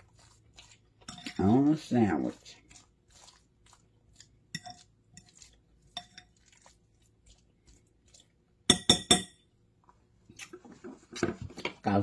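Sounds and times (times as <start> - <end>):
utensil clinking against a dish: 0.1 - 3.4, 4.2 - 6.7, 8.1 - 9.5.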